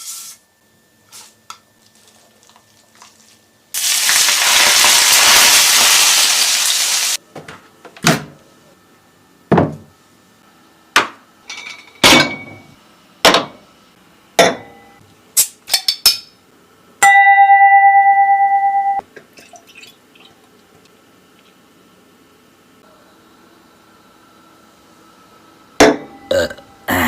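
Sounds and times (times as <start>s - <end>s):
dishes and utensils clinking: 11.5s - 12.7s.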